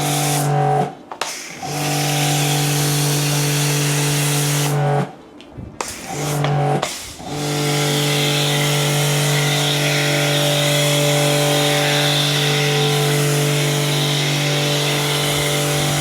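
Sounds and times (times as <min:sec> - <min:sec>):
pressure washer motor hum: 0:00.0 - 0:05.1, 0:05.8 - 0:16.0.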